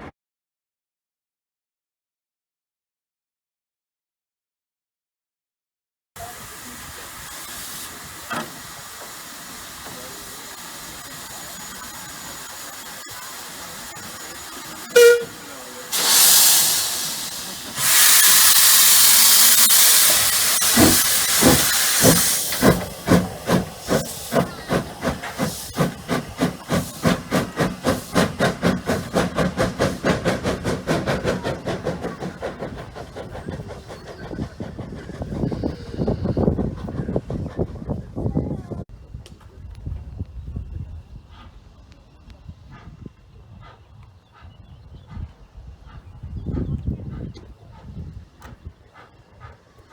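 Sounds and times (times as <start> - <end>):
steam hissing: 6.2 - 38.0
steam locomotive exhaust chuffs: 6.2 - 38.8
steam locomotive whistle: 14.1 - 21.0.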